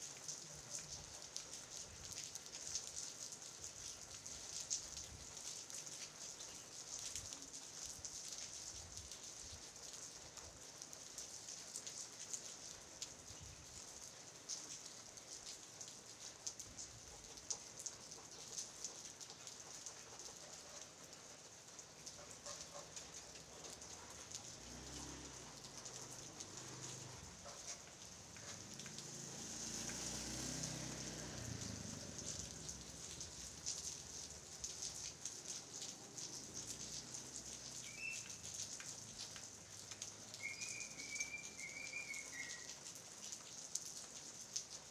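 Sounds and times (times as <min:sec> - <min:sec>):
rain falling on leaves: 0:00.0 - 0:44.9
bird calling: 0:37.9 - 0:38.4, 0:40.4 - 0:42.7.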